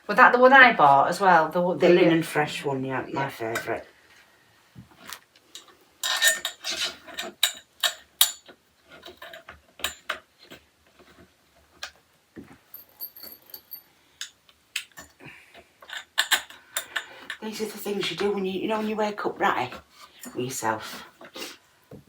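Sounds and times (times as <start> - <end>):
metal parts clinking and knocking: 5.6 - 10.2, 12.7 - 15.1, 15.8 - 17.4
high metallic jingle: 12.7 - 13.9.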